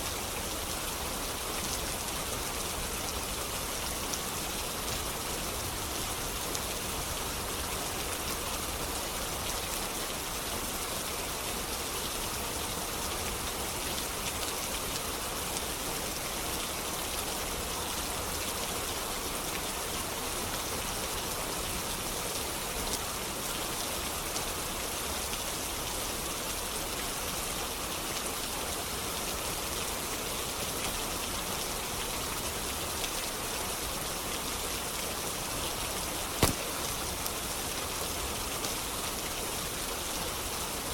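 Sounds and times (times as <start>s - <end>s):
steady rain hiss: 0.0s - 40.9s
faint clicks of raindrops: 34.9s - 39.9s.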